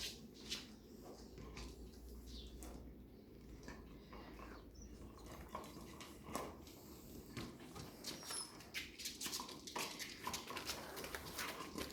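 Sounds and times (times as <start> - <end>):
puppies squeaking and whining: 7.9 - 9.0.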